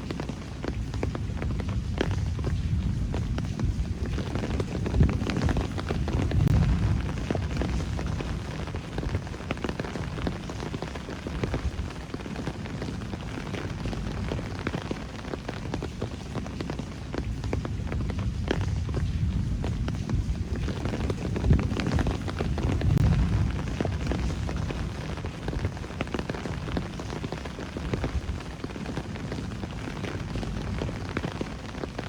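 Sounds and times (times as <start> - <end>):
rain drops ticking and splashing: 0.0 - 32.0
low rumble: 1.2 - 10.2, 17.7 - 27.1.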